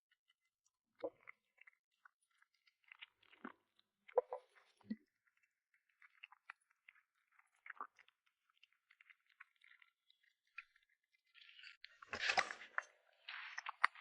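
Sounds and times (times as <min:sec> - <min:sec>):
cat chewing crunchy food: 0:01.1 - 0:14.0.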